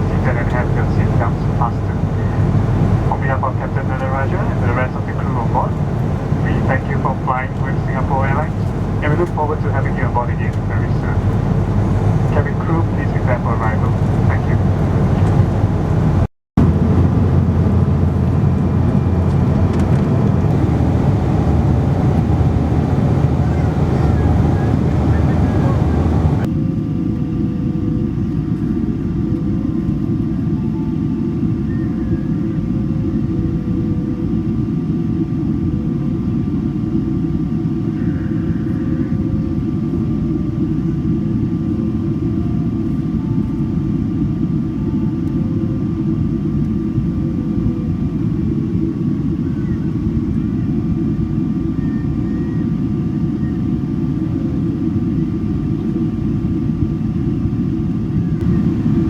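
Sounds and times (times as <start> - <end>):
engine and airflow rumble: 0.0 - 26.5, 37.6 - 59.0
faint steady whine: 0.0 - 26.5.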